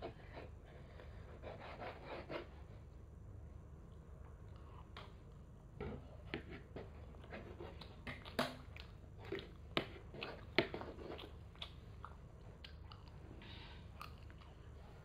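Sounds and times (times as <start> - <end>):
child chewing: 3.9 - 15.0.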